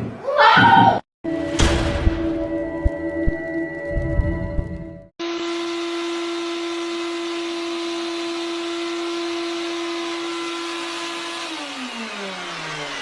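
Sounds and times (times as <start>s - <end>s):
small electric motor running: 5.2s - 13.0s.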